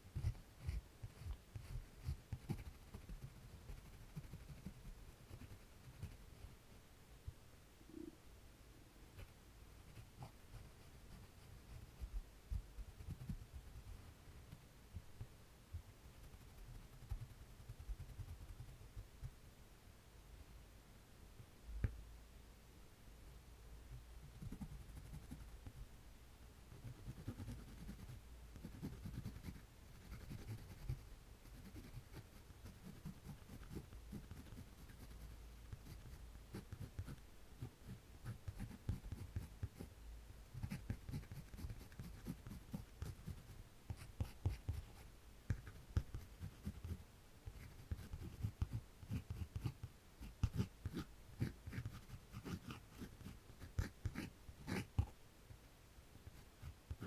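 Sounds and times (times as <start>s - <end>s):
pencil scratching on paper: 0.1s - 6.2s, 26.8s - 39.9s, 40.6s - 45.0s, 45.6s - 55.1s.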